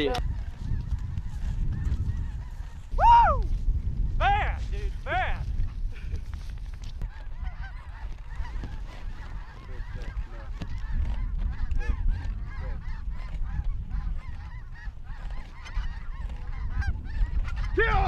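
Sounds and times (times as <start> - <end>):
geese honking: 7.1 - 18.0.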